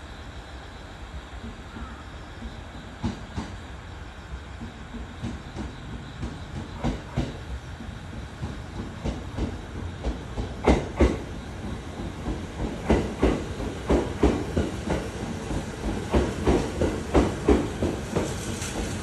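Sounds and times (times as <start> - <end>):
train cars rolling past: 0.1 - 19.0
wheels clacking over rail joints: 4.6 - 19.0.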